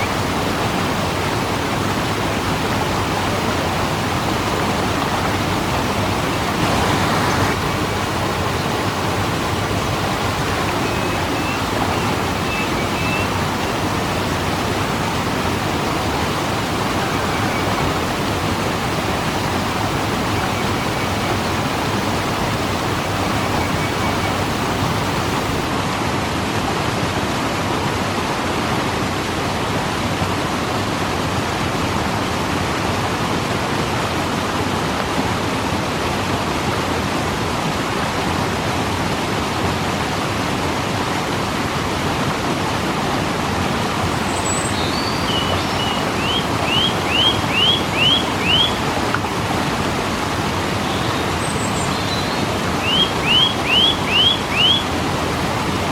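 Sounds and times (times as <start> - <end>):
waterfall rushing: 0.0 - 25.9, 43.8 - 55.9.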